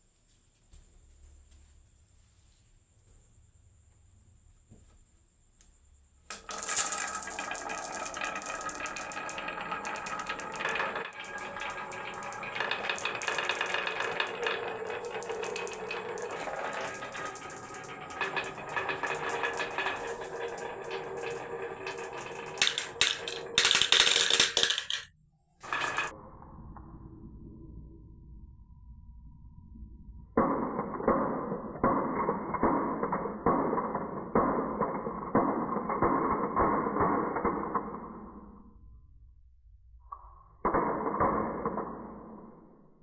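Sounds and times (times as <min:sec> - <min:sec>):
marbles clattering down wooden run: 0:06.3 - 0:26.1, 0:30.4 - 0:38.4, 0:40.7 - 0:42.4
ringing hum from track: 0:06.4 - 0:37.8.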